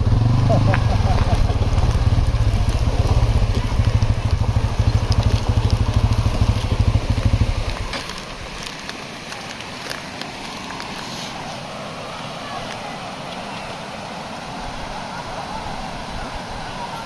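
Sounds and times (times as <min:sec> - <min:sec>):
motorcycle engine throbbing: 0:00.0 - 0:08.0.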